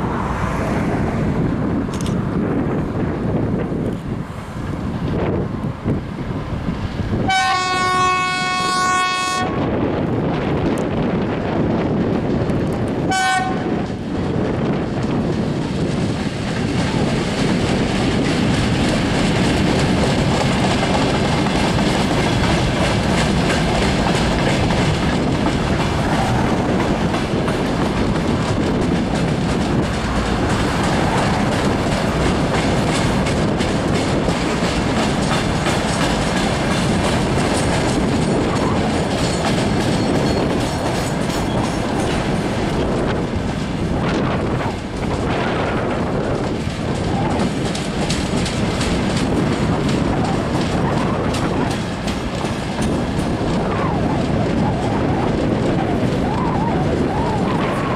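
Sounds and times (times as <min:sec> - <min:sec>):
train rumbling past: 0:00.0 - 0:57.9
train horn: 0:07.3 - 0:09.6, 0:13.1 - 0:13.9.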